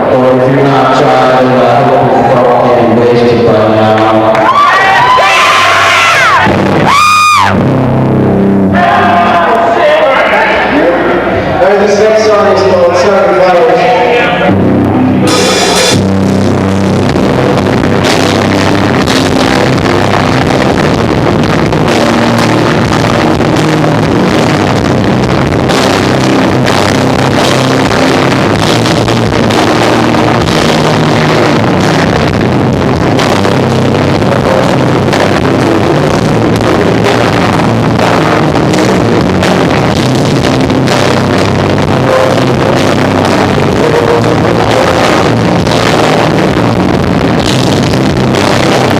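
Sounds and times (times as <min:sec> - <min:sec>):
live rock band playing: 0:14.4 - 0:48.9.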